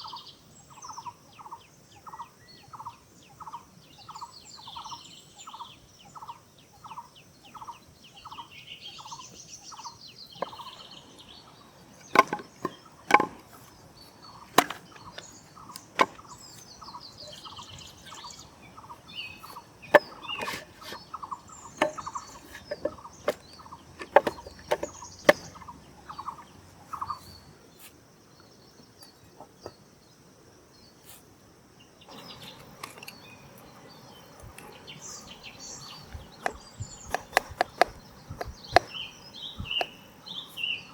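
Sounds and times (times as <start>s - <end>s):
wood chopping knocks: 12.0s - 13.8s, 14.4s - 16.6s, 19.9s - 21.0s, 21.7s - 25.6s.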